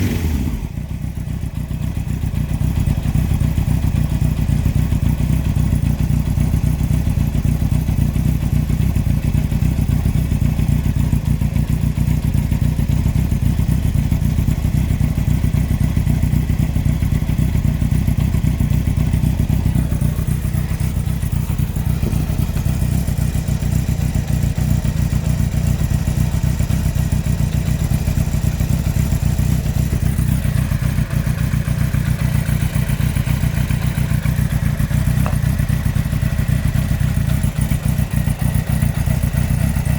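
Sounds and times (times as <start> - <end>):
motorcycle engine running: 0.0 - 39.9
rapid engine knock: 0.0 - 39.9.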